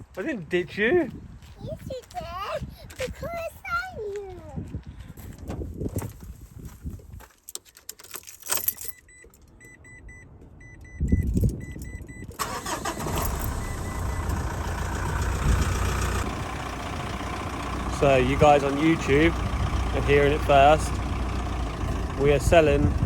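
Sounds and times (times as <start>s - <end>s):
truck chime beeping: 8.9s - 23.0s
engine cranking and idling: 12.4s - 23.0s.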